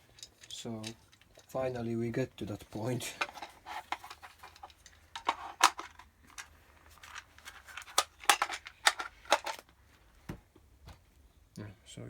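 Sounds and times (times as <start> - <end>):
clicks of small hard parts: 3.2 - 9.8.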